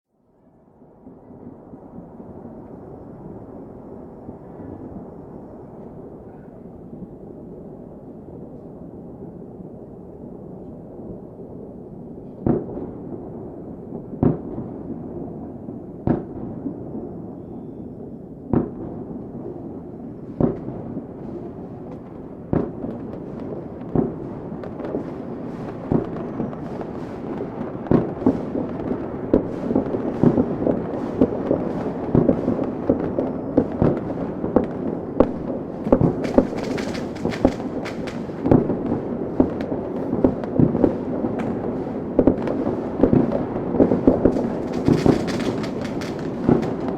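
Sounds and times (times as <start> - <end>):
fireworks bangs: 16.0 - 16.6, 20.2 - 46.9.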